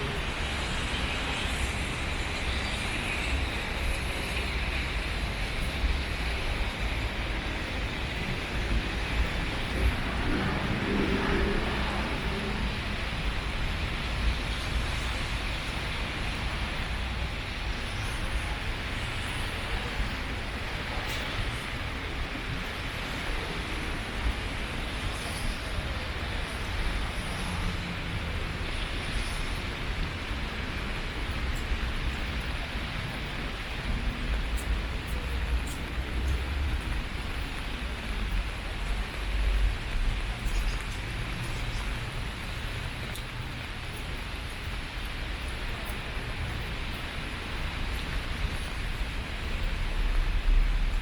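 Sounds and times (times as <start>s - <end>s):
rain hiss: 0.0s - 51.0s
faint light ticks: 34.4s - 48.8s.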